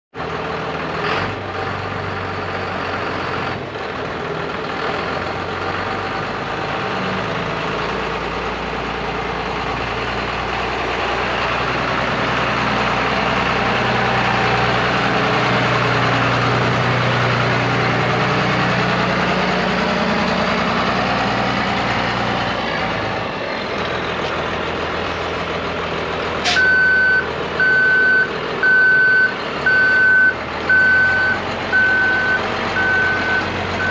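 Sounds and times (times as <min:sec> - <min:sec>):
diesel truck engine running: 0:00.2 - 0:33.9
truck backup alarm beeping: 0:26.4 - 0:33.9.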